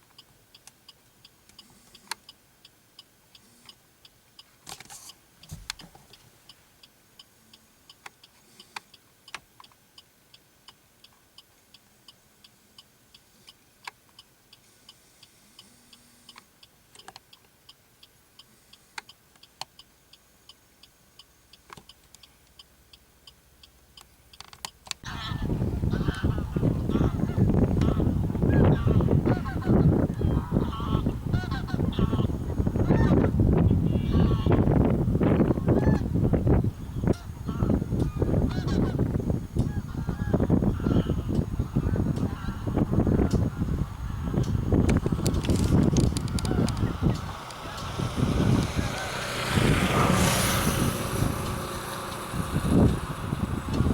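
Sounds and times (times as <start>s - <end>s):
waterbird flock honking: 25.0s - 33.3s, 33.9s - 34.6s, 37.0s - 39.1s, 39.7s - 44.2s
sharp clicks: 44.4s - 49.5s.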